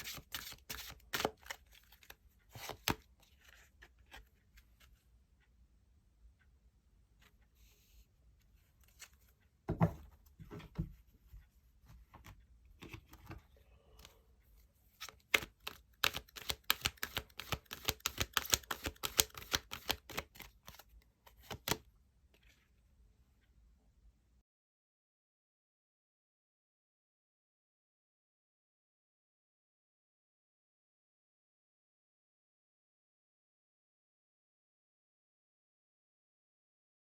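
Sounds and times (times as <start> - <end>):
cards being shuffled: 0.0 - 4.3, 15.0 - 21.8.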